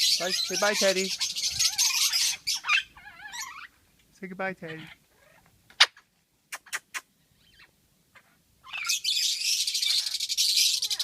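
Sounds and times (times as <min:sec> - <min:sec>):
loud buzzing bird chatter: 0:00.0 - 0:03.7, 0:08.6 - 0:11.0
lovebirds chirping: 0:00.0 - 0:11.0.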